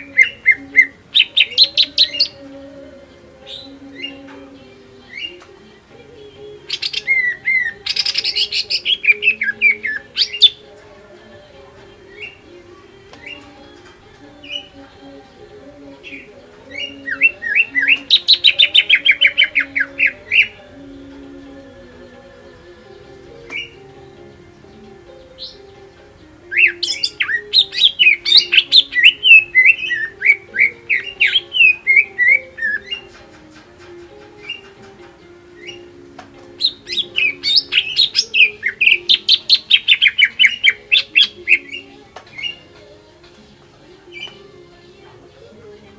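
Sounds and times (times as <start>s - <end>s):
bird singing chirps and whistles: 0.0s - 2.4s, 6.2s - 10.7s, 11.9s - 13.6s, 16.0s - 21.2s, 23.3s - 23.9s, 26.5s - 33.2s, 34.4s - 34.8s, 35.5s - 42.8s.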